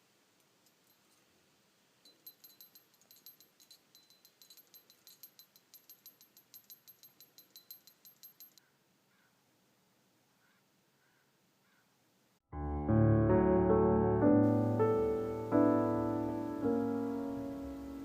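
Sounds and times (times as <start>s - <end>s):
small metal bell jingling: 2.0s - 8.6s.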